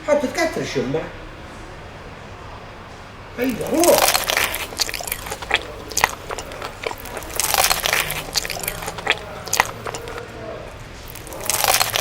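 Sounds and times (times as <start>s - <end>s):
crunchy chewing of fried food: 3.4s - 12.0s.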